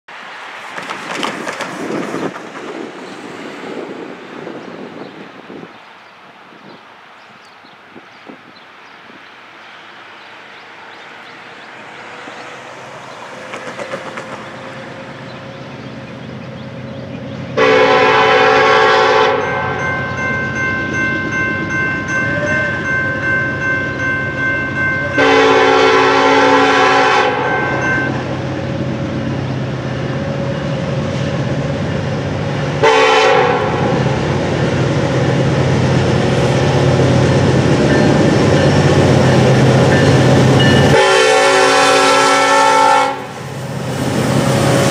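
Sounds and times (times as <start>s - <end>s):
diesel locomotive engine rumble: 0.1s - 44.9s
train air horn blasts: 17.6s - 20.1s, 24.6s - 28.2s, 32.8s - 34.0s, 39.9s - 43.4s.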